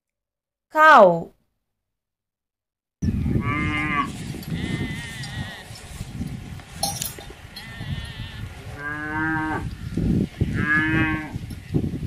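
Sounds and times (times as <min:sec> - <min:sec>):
cows mooing: 0:03.2 - 0:05.9, 0:07.4 - 0:11.4
low rustling noise: 0:04.1 - 0:08.8.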